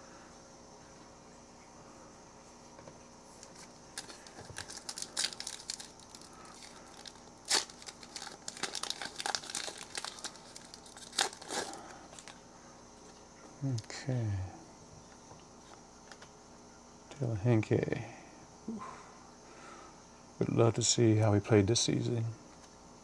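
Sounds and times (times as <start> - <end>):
plastic wrapper tearing and crinkling: 3.4 - 12.4.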